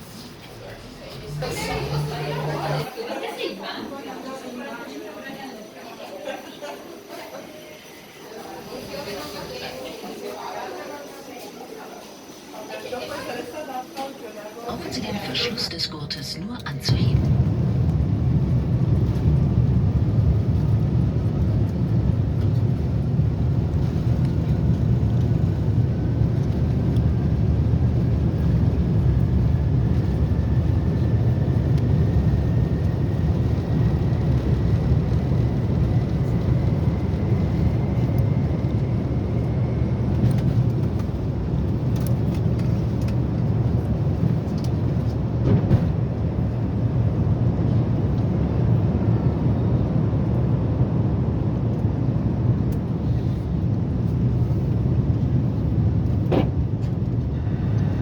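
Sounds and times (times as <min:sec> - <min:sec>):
jet engine rumble with whine: 0:14.7 - 0:58.0.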